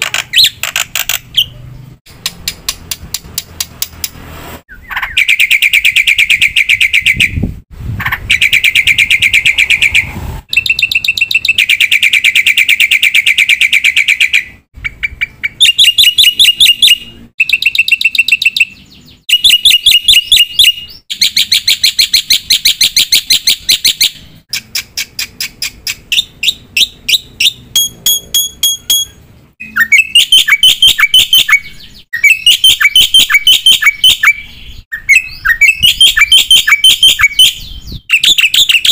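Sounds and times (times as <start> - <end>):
bird singing rapid trills: 8.3 - 38.9.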